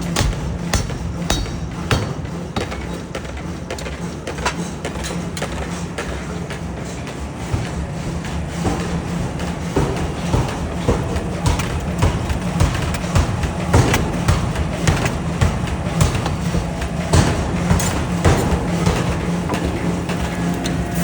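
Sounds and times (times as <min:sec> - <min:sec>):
forging hammer clanging on metal: 0:00.0 - 0:03.2, 0:09.8 - 0:21.0
low machine hum: 0:00.0 - 0:21.0.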